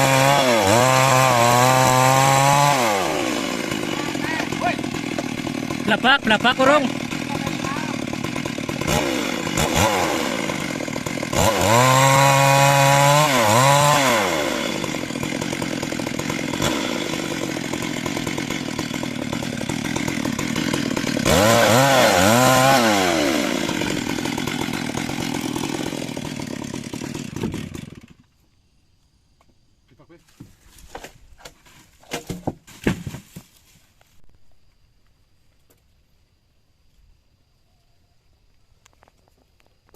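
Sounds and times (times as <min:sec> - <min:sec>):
chainsaw running and revving: 0:00.0 - 0:28.2.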